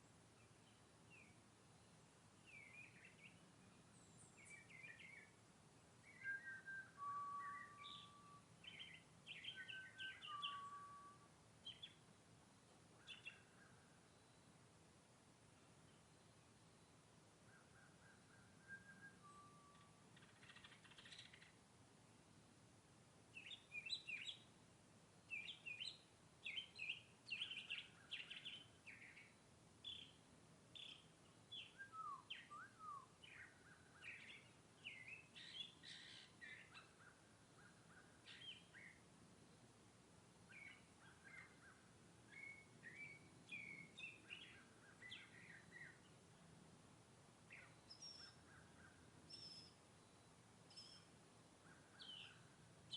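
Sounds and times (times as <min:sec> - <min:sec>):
mockingbird singing: 0:06.1 - 0:10.9, 0:17.5 - 0:21.5, 0:25.3 - 0:30.1, 0:30.8 - 0:39.0, 0:40.5 - 0:46.1, 0:51.7 - 0:52.9.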